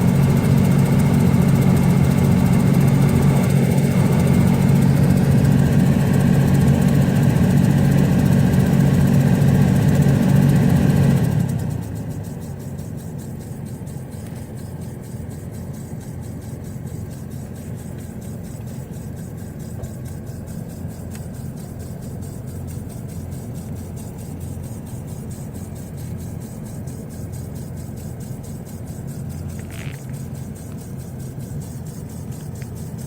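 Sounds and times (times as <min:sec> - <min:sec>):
blower fan: 0:00.0 - 0:33.0
engine idling hum: 0:00.0 - 0:33.0
rapid ticking behind glove box: 0:00.0 - 0:33.0.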